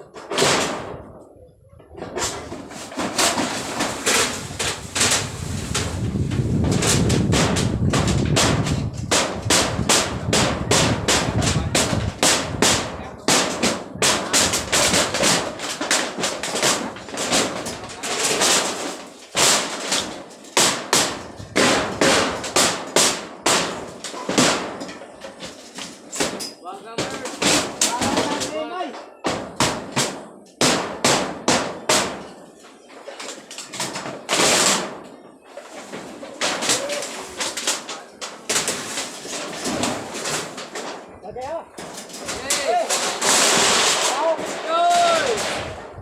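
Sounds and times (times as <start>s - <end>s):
rumbling clatter: 0.1s - 18.8s
hammer blows and bangs: 2.0s - 25.6s, 41.8s - 46.0s.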